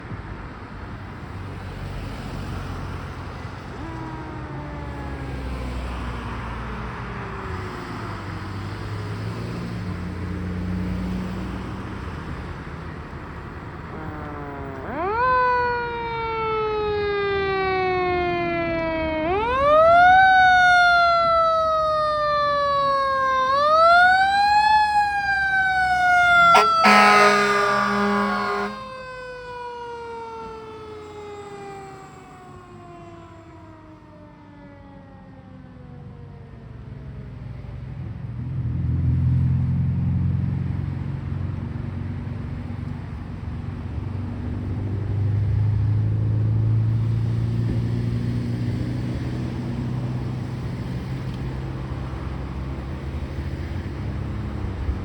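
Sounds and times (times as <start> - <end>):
truck engine rumbling: 23.4 - 28.8
air horn blast: 26.2 - 28.8.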